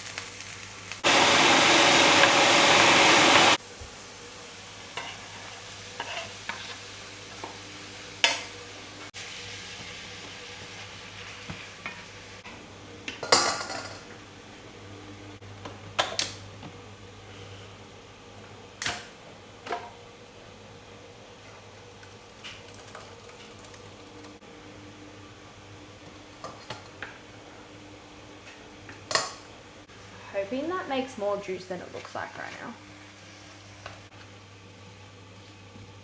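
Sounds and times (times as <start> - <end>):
meat sizzling in a frying pan: 0.0 - 12.4
utensil stirring in a pan: 4.9 - 6.9.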